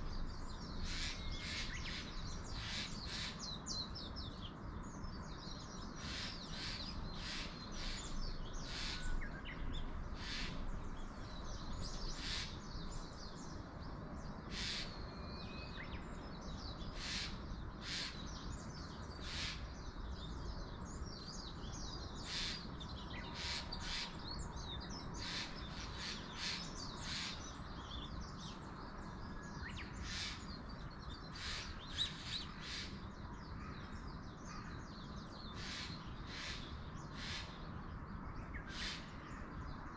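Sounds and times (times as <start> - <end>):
birds calling sharply: 5.8 - 13.5, 14.4 - 19.8, 29.5 - 37.7.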